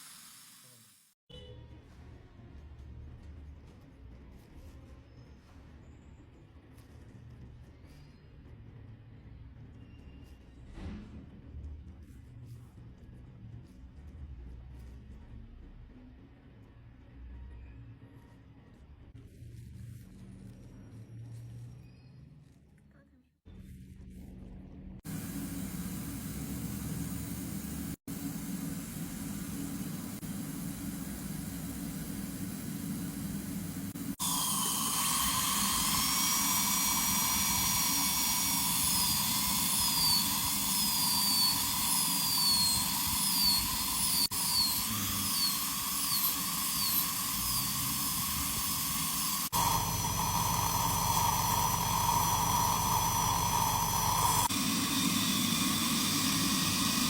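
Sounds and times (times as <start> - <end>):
water spray and suction hiss: 0.0 - 1.2, 25.1 - 57.0
dental drill whining: 25.1 - 57.0.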